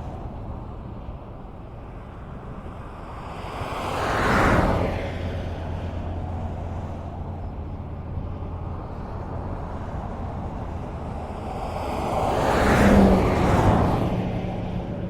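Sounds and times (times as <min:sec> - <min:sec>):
road noise rumble: 0:00.0 - 0:15.0
vehicle passing close by: 0:03.2 - 0:15.0.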